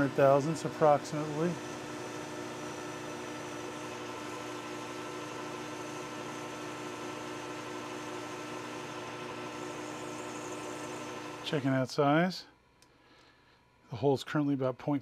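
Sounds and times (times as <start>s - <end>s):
metal lathe humming: 0.0s - 11.7s.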